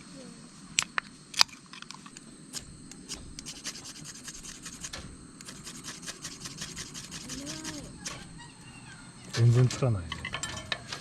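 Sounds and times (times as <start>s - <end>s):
scratching and rubbing: 3.0s - 11.0s.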